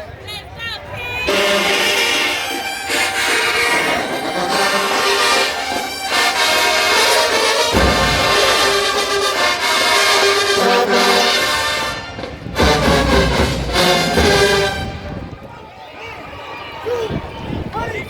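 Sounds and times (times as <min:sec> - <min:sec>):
brass band playing held chords: 0:01.2 - 0:15.5
deep low brass notes: 0:01.3 - 0:15.5.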